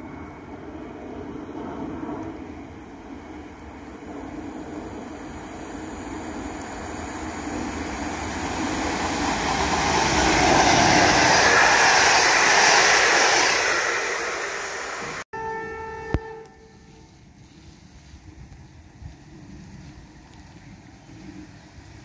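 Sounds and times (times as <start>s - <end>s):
train passing at speed: 0.0s - 22.0s
train horn note: 15.3s - 17.3s.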